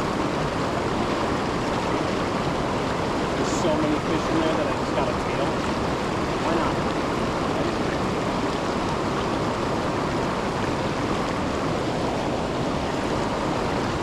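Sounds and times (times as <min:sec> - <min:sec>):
water pouring over waterfall: 0:00.0 - 0:14.0.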